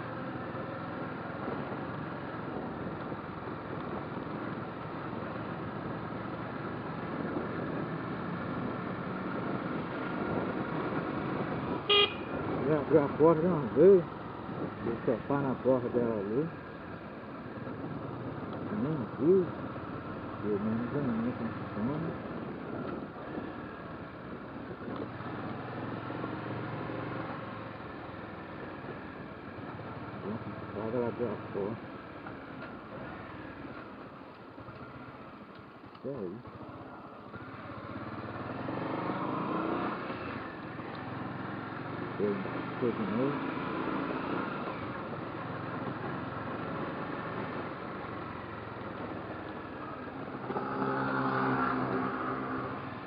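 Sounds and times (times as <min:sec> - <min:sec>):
motorcycle engine hum: 0:00.0 - 0:53.0
wind and road noise: 0:00.0 - 0:53.0.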